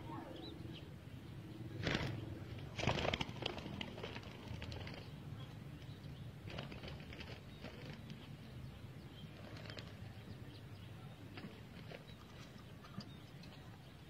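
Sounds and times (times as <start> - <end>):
dove wings flapping: 1.8 - 8.3, 9.3 - 10.2, 11.3 - 12.7.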